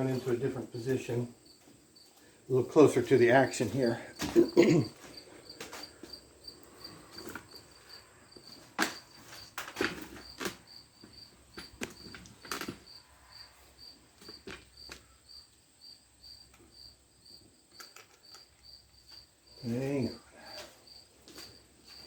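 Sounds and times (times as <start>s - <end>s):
cricket chirping: 0.0s - 22.0s
handling knocks and clunks: 3.5s - 5.9s, 8.5s - 10.6s.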